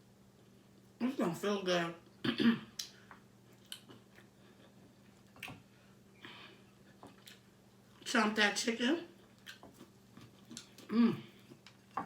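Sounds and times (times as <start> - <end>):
soft crunch of chewing: 0.2 - 1.0, 2.8 - 8.1, 9.1 - 12.0.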